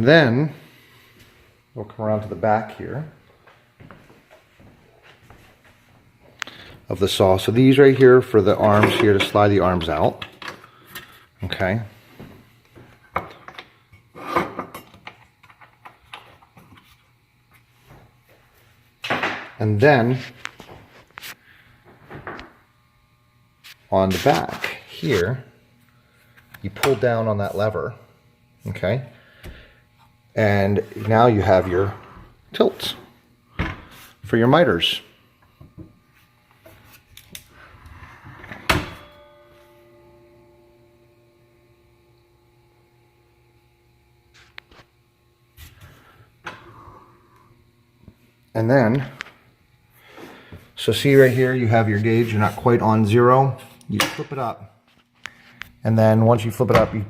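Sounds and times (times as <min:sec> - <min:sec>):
sharp metallic clunk ringing: 0:38.7 - 0:40.7.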